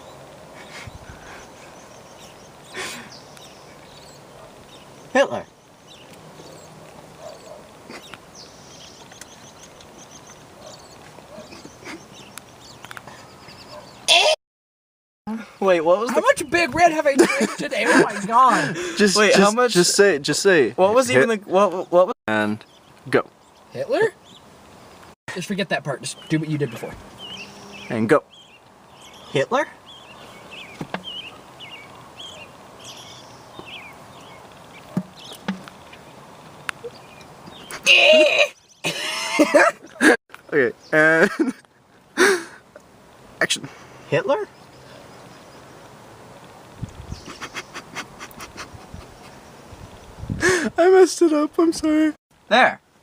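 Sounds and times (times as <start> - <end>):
birds chirping: 0.0 - 14.4, 15.3 - 52.8.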